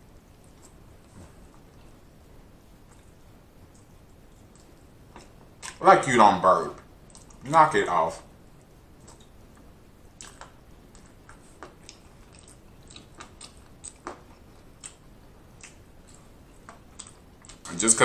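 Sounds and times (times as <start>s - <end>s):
person chewing with mouth smacks: 2.8s - 5.8s, 7.0s - 7.4s, 9.0s - 17.7s.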